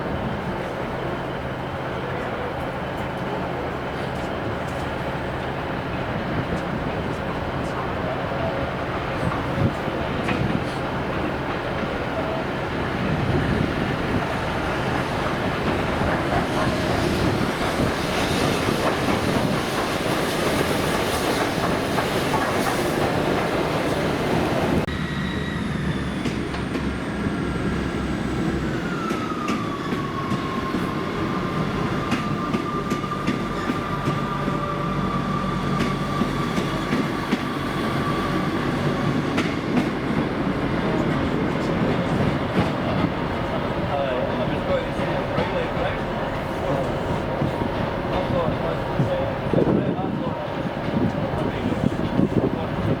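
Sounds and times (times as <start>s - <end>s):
train running on rails: 0.0s - 53.0s
wheel squeal: 24.9s - 26.4s.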